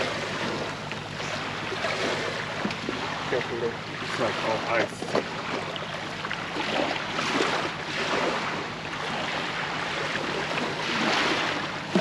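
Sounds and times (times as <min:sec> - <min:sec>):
small waves washing ashore: 0:00.0 - 0:12.0.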